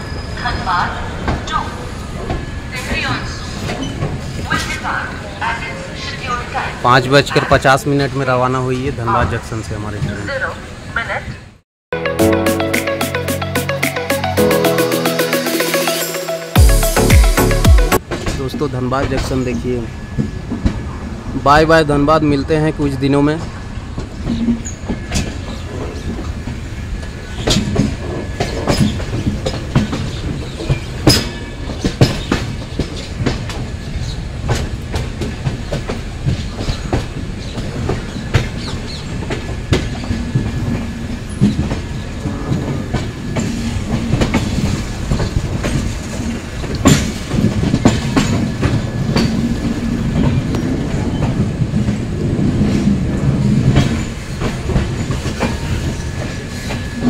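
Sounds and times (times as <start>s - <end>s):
train rumbling on track: 0.0s - 11.6s, 17.5s - 57.0s
wheels clacking over rail joints: 23.4s - 57.0s.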